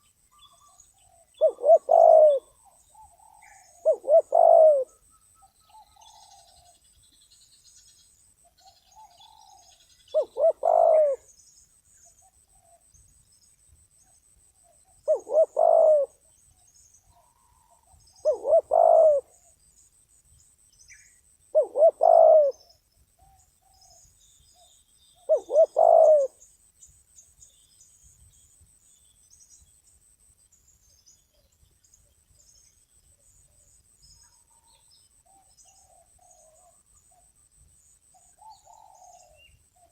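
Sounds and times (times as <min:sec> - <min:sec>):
dove cooing: 0:00.6 - 0:05.0, 0:05.7 - 0:06.8, 0:09.0 - 0:11.3, 0:14.7 - 0:16.2, 0:17.2 - 0:19.5, 0:21.5 - 0:24.0, 0:25.3 - 0:26.4, 0:38.2 - 0:39.9.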